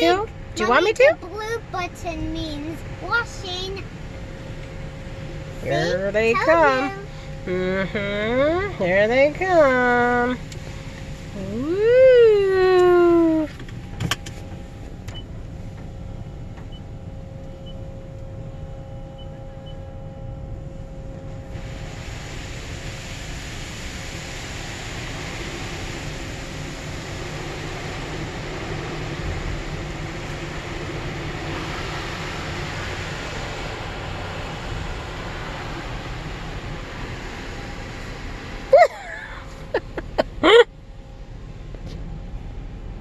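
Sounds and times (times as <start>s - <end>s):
car wash machine hum: 0.0s - 43.0s
water spray hitting car: 21.6s - 38.9s.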